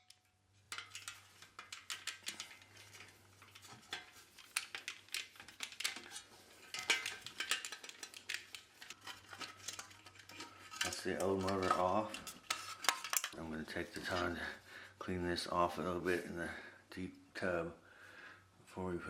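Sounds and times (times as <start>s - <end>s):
small metallic clicks: 0.0s - 13.4s
wrench and metal parts knocking: 0.0s - 13.4s.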